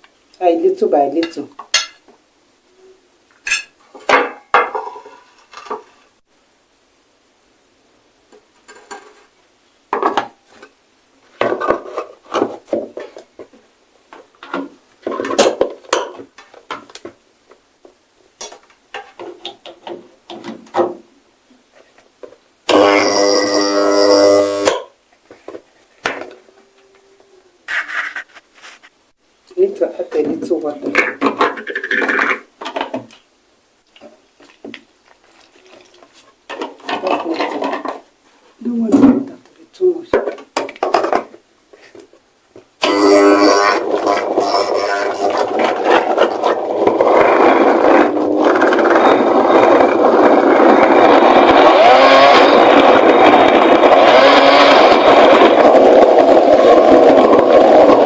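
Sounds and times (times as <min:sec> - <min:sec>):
utensils and containers clattering: 0:01.2 - 0:02.1, 0:03.4 - 0:05.1
grinder motor whirring: 0:22.7 - 0:24.8, 0:42.8 - 0:58.0.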